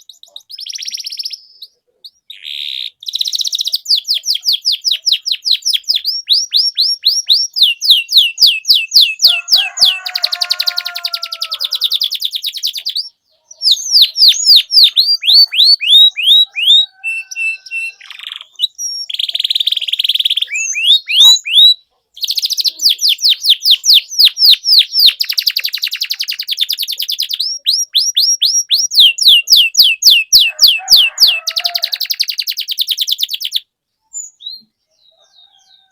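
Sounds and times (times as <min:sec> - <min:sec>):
canary singing fast trills: 0:00.0 - 0:35.9.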